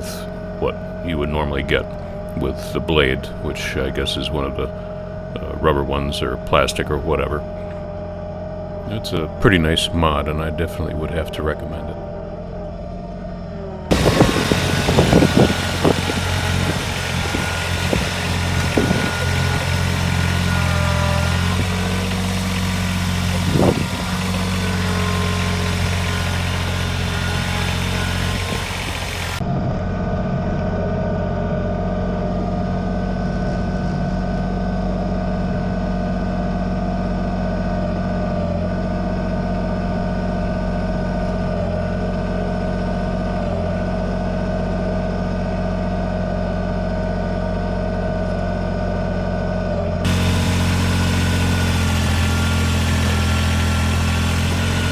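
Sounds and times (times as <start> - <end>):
tractor diesel engine running: 0.0 - 12.5, 13.3 - 29.4, 50.0 - 54.9
snowplow blade scraping pavement: 13.9 - 29.4, 50.1 - 54.9.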